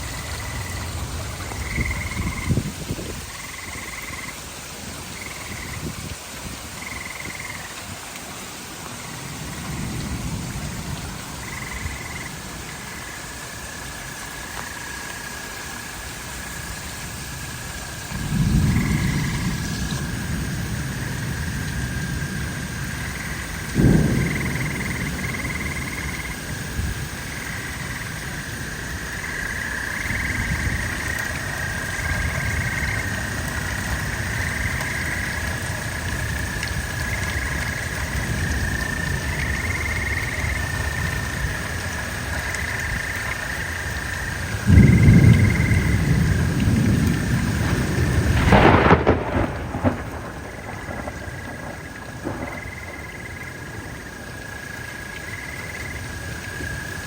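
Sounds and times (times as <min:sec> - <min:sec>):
rolling thunder: 0:00.0 - 0:04.2, 0:09.1 - 0:13.0, 0:18.0 - 0:43.1, 0:43.9 - 0:54.7
steady rain: 0:00.0 - 0:57.0
loud thunderclap: 0:09.4 - 0:12.1, 0:18.1 - 0:28.5, 0:44.6 - 0:54.0.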